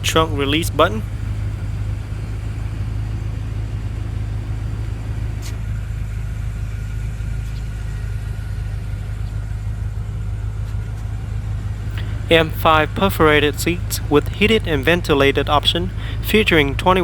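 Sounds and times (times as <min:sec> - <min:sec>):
car engine idling: 0:00.0 - 0:06.6, 0:11.6 - 0:17.0.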